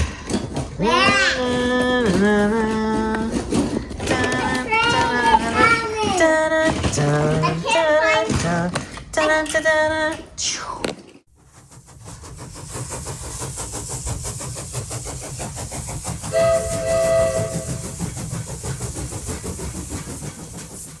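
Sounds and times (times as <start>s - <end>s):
steam locomotive chugging: 0.0s - 9.7s, 11.3s - 21.0s
steam whistle blowing: 16.3s - 17.9s.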